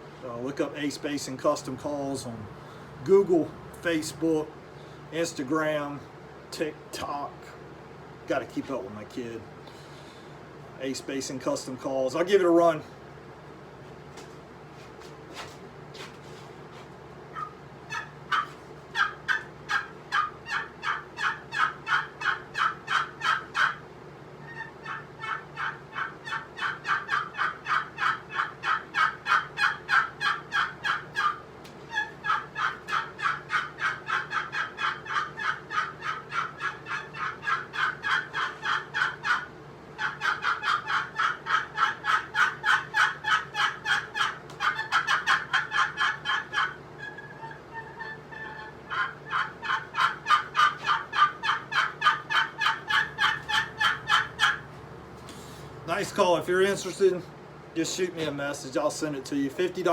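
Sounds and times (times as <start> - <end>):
raspy turkey call yelps: 17.2 - 56.0.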